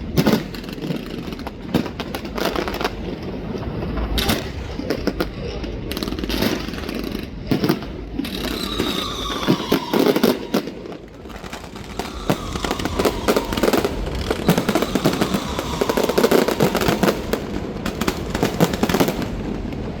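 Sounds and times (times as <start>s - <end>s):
fireworks bangs and crackles: 0.0s - 20.0s
faint falling tone: 8.5s - 17.5s.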